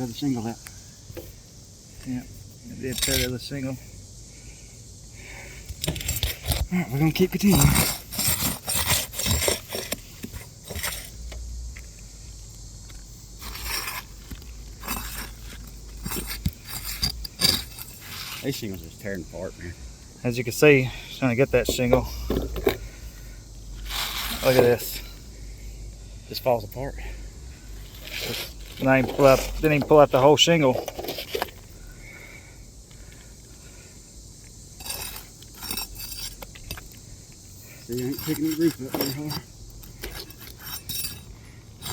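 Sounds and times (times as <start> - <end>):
steady high hiss: 0.0 - 8.1, 9.9 - 40.0
shingles scraping and tearing: 2.8 - 3.5, 5.7 - 11.2, 13.4 - 18.9, 23.8 - 24.9, 27.8 - 31.6, 37.8 - 41.9.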